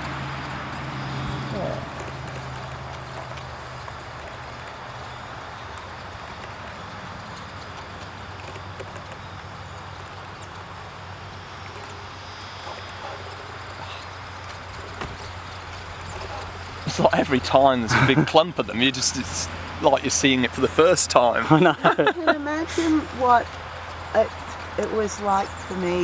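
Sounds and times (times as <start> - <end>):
rushing background noise: 0.0 - 26.0.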